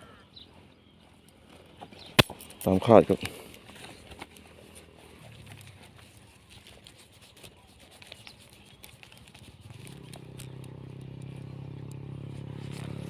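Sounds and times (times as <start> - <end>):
engine humming: 0.0 - 6.9, 8.2 - 13.0
small clicks: 8.1 - 13.0.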